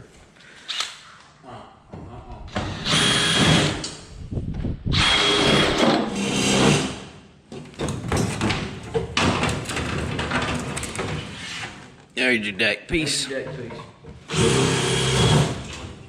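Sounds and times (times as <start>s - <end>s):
power drill whining: 2.6s - 3.9s, 5.0s - 6.9s, 14.3s - 15.9s.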